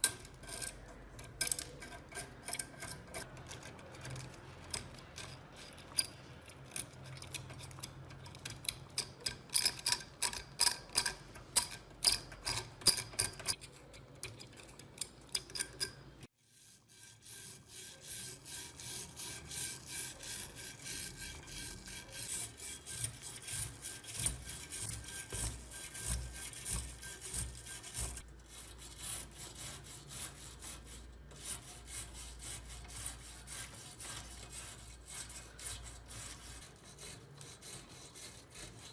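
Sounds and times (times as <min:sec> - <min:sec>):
hand sanding rusty metal: 0:16.4 - 0:38.9.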